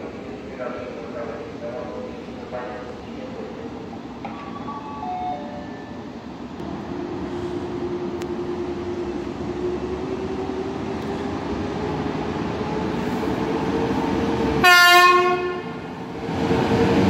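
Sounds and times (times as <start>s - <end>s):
electric train approaching: 0.0s - 17.0s.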